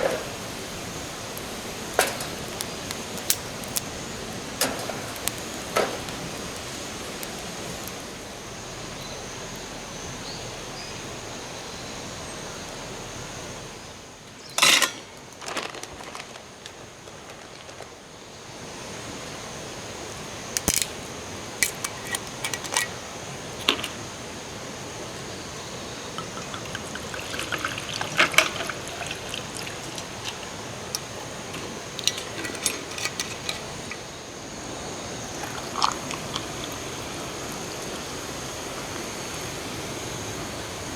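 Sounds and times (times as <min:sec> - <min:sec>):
stream water flowing: 0:21.7 - 0:40.9.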